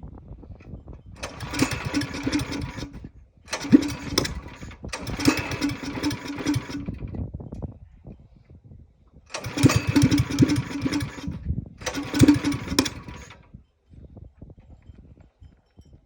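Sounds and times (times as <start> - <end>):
mini bike engine throttling up: 1.2 - 7.1, 9.3 - 13.4.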